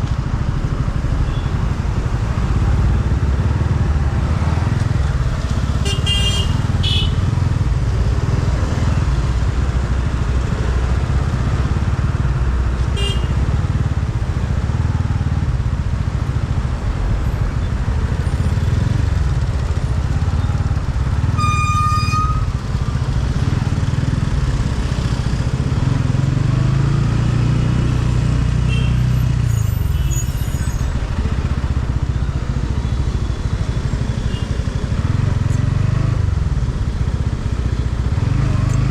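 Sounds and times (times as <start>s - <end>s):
motorcycle engine running: 0.0s - 29.2s, 31.0s - 38.9s
vehicle horns honking: 5.8s - 7.3s, 13.0s - 13.4s, 21.2s - 22.6s, 28.6s - 30.6s.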